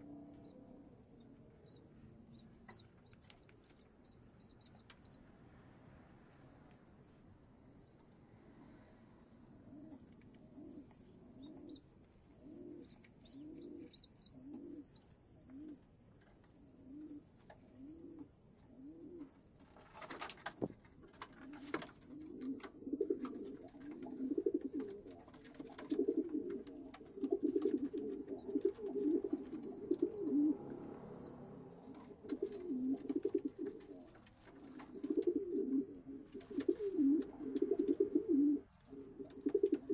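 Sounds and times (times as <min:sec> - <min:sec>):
high insect trill: 0:00.0 - 0:39.9
pigeons cooing: 0:12.4 - 0:15.8, 0:21.2 - 0:39.9.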